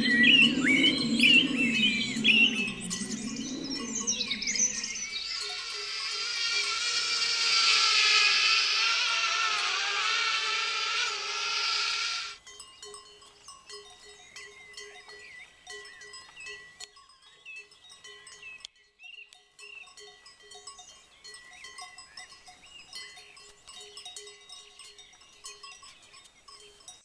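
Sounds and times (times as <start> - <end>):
livestock bells clanking: 0.0 - 6.1, 12.4 - 27.0
small birds chirping: 0.0 - 27.0.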